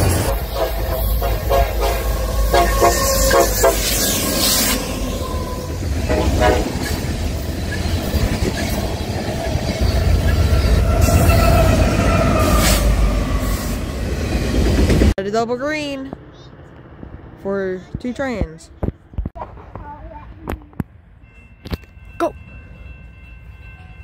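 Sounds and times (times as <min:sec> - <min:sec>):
freight cars rumbling and clattering: 0:00.0 - 0:22.8
train horn blasts: 0:00.3 - 0:06.9.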